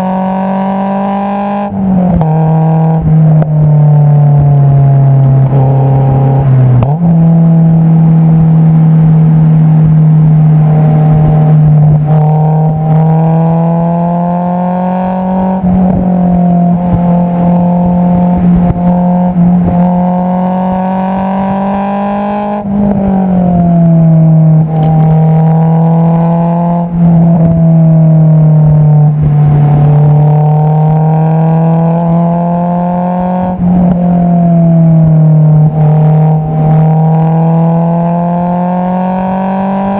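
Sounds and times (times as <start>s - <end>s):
car exhaust drone while driving: 0.0s - 39.9s.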